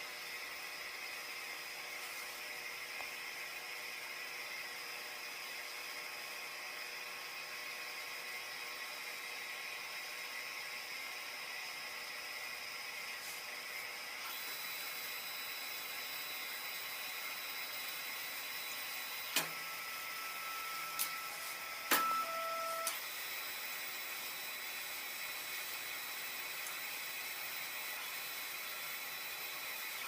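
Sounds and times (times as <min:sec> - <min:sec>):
printer fans whirring: 0:08.1 - 0:30.0
short steady whines: 0:13.4 - 0:24.7.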